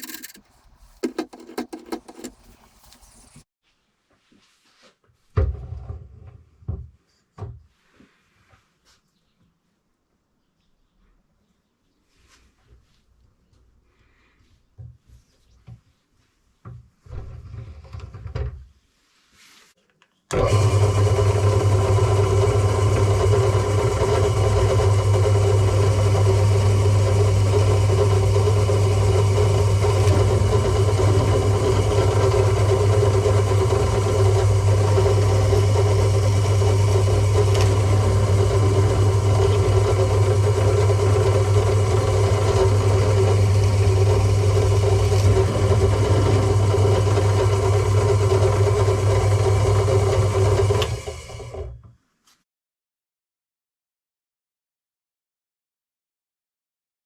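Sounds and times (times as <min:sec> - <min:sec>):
drill press motor humming: 0:00.0 - 0:00.4, 0:20.3 - 0:51.8.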